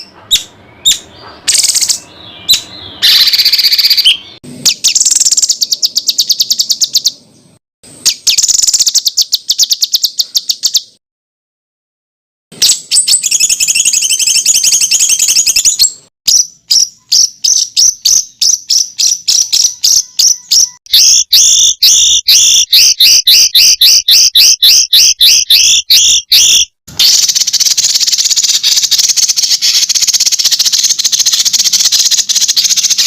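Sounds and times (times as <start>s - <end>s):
buzzy high bird trill: 0.0s - 11.0s, 12.6s - 33.0s
quick high bird chirps: 0.0s - 11.0s, 12.5s - 33.0s.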